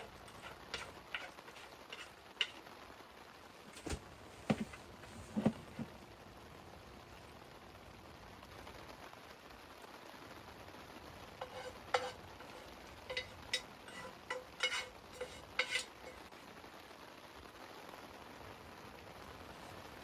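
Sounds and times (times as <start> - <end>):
utensil clinking and scraping pan: 0.0 - 2.7, 11.4 - 16.4
faint sizzle in a pan: 0.0 - 20.0.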